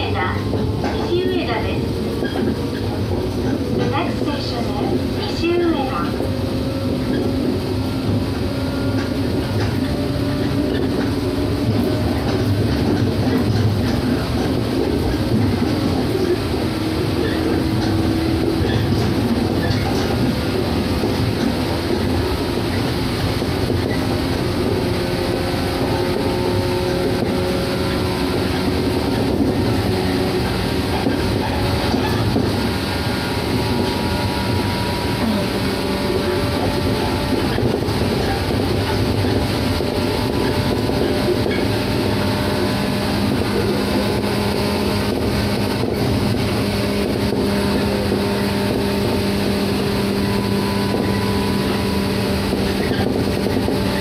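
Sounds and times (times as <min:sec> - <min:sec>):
train wheels rumbling: 0:00.0 - 0:54.0.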